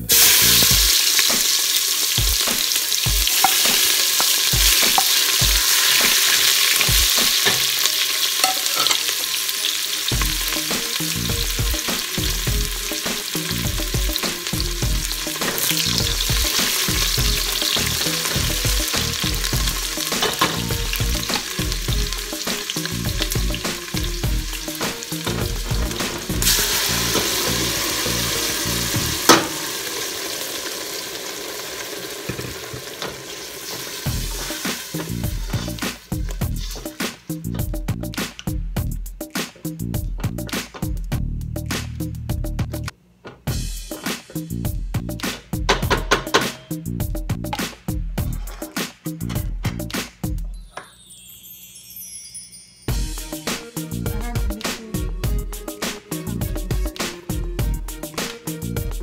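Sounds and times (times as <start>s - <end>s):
onion sizzling in hot oil: 0.0s - 37.6s.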